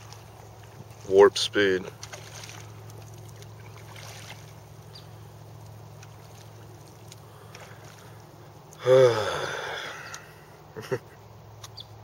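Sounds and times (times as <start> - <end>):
water splashing: 0.0 - 8.8
boat motor hum: 0.0 - 11.6.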